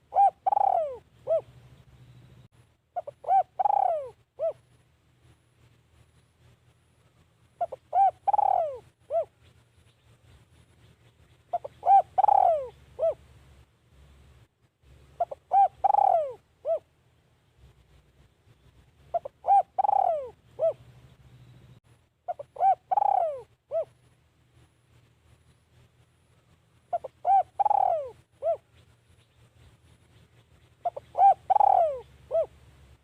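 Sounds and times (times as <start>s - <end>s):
dove cooing: 0.0s - 1.8s, 3.0s - 4.7s, 7.6s - 9.5s, 11.5s - 13.2s, 15.2s - 16.9s, 19.1s - 20.9s, 22.3s - 24.0s, 26.9s - 28.8s, 30.8s - 32.6s.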